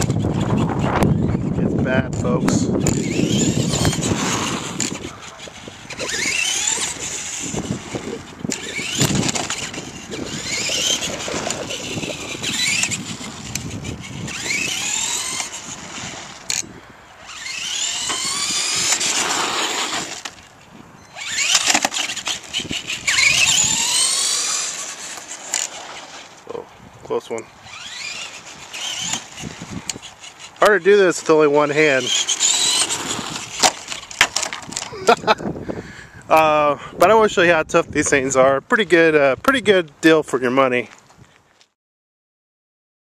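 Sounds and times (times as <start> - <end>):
rc truck electric motor whining: 0.0 - 26.6, 27.4 - 35.3
truck rattling over ground: 27.7 - 34.9.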